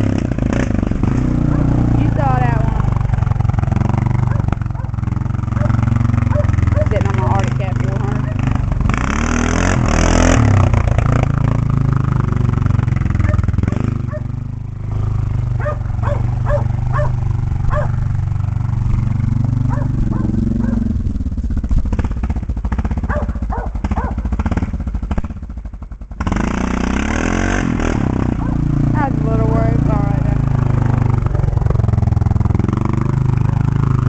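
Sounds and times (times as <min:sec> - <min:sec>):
engine running at low revs: 0:00.0 - 0:34.0
dog barking: 0:01.5 - 0:01.7, 0:04.3 - 0:05.0, 0:05.6 - 0:07.0, 0:13.2 - 0:13.5, 0:14.1 - 0:14.3, 0:15.6 - 0:18.0, 0:19.7 - 0:20.9, 0:23.1 - 0:24.2, 0:28.4 - 0:28.6.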